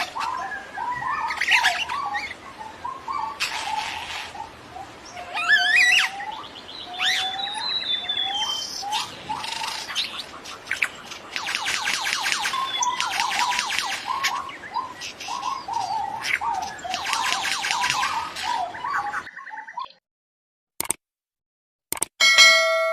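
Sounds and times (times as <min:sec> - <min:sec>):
birds chattering: 0:00.0 - 0:20.0
bird calling upward-slurred notes: 0:05.3 - 0:10.2, 0:10.8 - 0:20.0.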